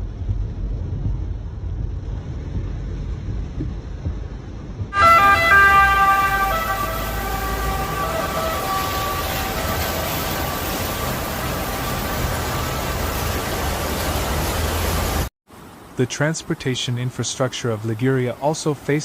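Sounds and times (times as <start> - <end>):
low rumbling noise: 0.0 - 16.6
road noise: 0.0 - 19.0
emergency vehicle siren: 5.0 - 14.8.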